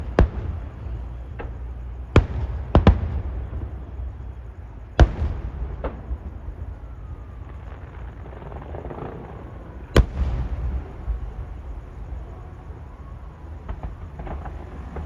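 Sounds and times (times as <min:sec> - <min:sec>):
faint firework bangs: 0:00.0 - 0:15.0
firework shells booming: 0:00.0 - 0:15.0.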